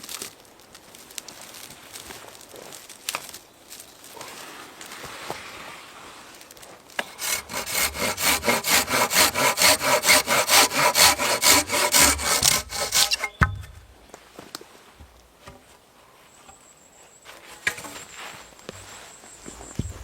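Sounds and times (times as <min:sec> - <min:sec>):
hand saw cutting wood: 0:07.0 - 0:13.8
wooden knock: 0:11.9 - 0:13.9.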